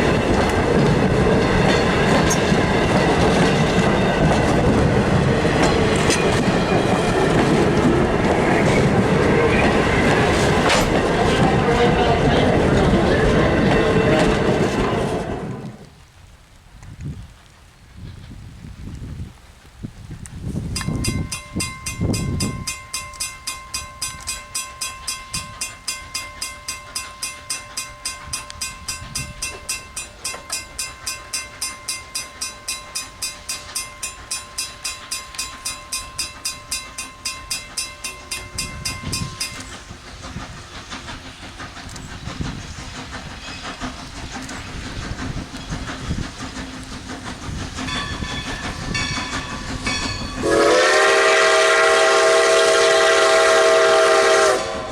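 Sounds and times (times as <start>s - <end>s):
steam locomotive rumble and chuffs: 0.0s - 16.0s, 17.3s - 54.9s
crossing signal bell ringing: 20.8s - 39.9s, 47.9s - 51.4s
locomotive whistle: 47.9s - 54.9s.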